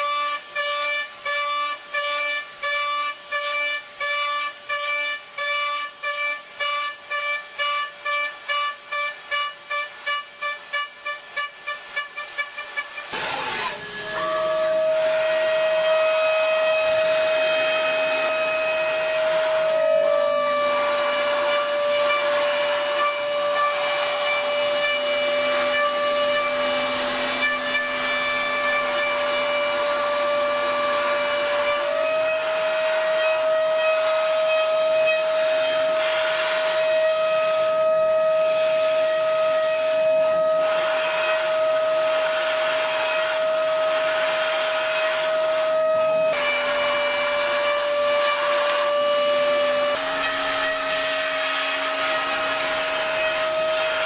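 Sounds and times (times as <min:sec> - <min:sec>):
rough cutting noise: 0:11.7 - 0:37.8, 0:40.7 - 0:54.0
machine spindle whine: 0:13.0 - 0:54.0.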